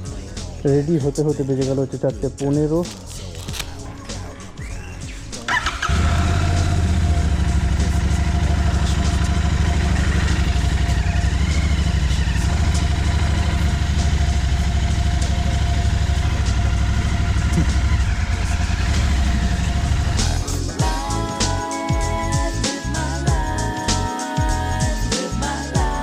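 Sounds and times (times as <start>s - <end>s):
motorcycle engine idling: 3.6s - 22.1s.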